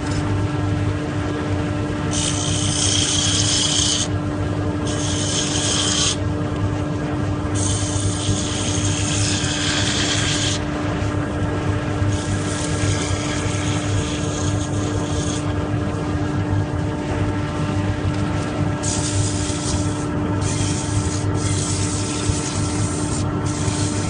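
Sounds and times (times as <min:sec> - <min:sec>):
wood lathe humming: 0:02.0 - 0:04.2, 0:04.8 - 0:06.2, 0:07.6 - 0:15.9, 0:18.7 - 0:24.0
turning tool scraping wood: 0:02.1 - 0:04.2, 0:04.8 - 0:06.2, 0:07.5 - 0:10.7, 0:12.1 - 0:15.6, 0:18.2 - 0:24.0.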